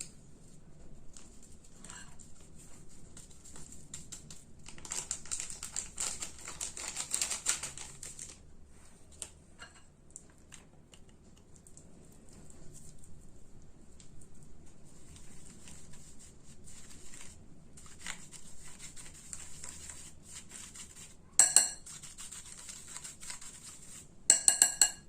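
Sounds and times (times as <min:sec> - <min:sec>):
dough mixing clicks against bowl: 0:21.4 - 0:25.0.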